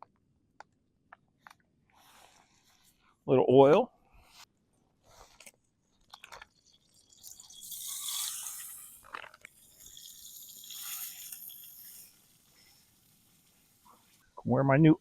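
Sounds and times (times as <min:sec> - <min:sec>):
oil squirting and splashing: 0:06.0 - 0:13.8.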